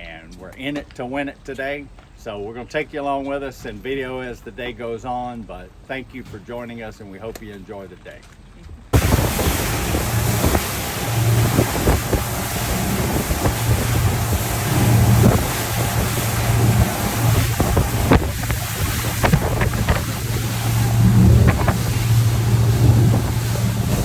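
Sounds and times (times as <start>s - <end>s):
motorboat engine humming: 8.9s - 24.0s
water rushing past hull: 8.9s - 24.0s
wind buffeting microphone: 8.9s - 24.0s.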